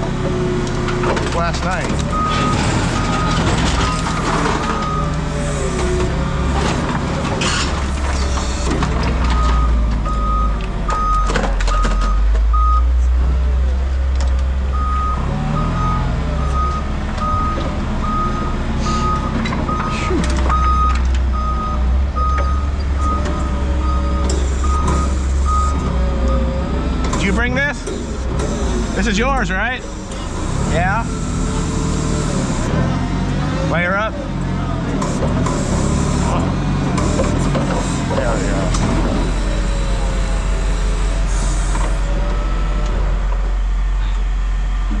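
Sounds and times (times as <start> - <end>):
vehicle engine running: 0.0 - 45.0
backup alarm beeping: 14.8 - 25.9.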